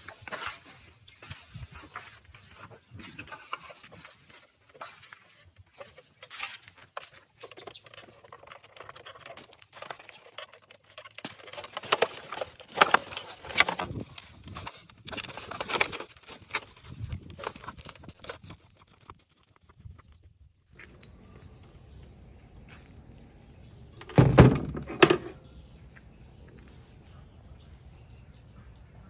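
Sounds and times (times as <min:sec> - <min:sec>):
hands tapping and scraping parts: 0:00.0 - 0:20.1, 0:24.0 - 0:25.4.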